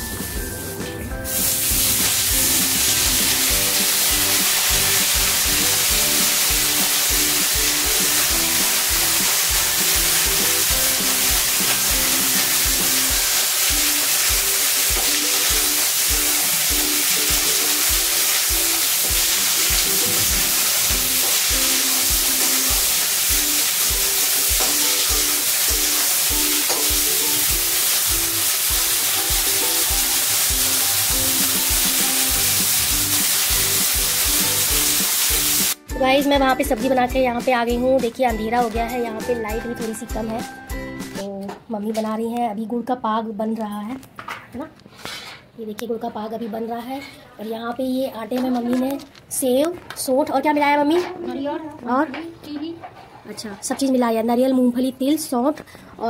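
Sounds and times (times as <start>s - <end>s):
vegetables sizzling in a wok: 0.0s - 36.0s
background music with steady beat: 0.0s - 41.4s.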